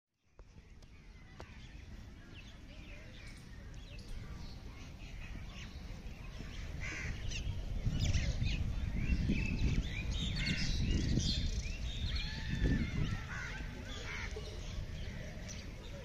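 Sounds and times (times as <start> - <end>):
birds chirping: 0.2 - 16.0.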